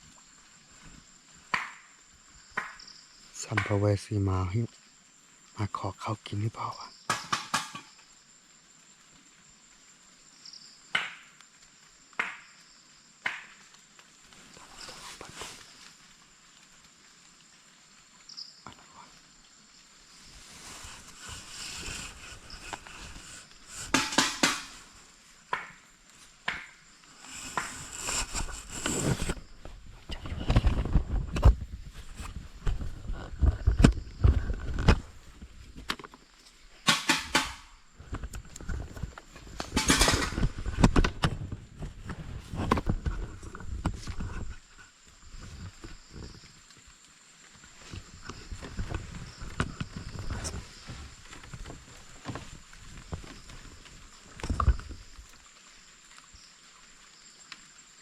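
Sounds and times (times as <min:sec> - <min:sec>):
sharp knocks and taps: 0:07.1 - 0:07.9, 0:23.7 - 0:24.8, 0:36.9 - 0:37.7
rustling noise: 0:14.1 - 0:16.7, 0:19.8 - 0:26.4, 0:27.0 - 0:55.5
faint rustling: 0:18.9 - 0:25.5
banging on a pot: 0:23.9 - 0:24.8, 0:36.9 - 0:37.7, 0:39.8 - 0:40.5.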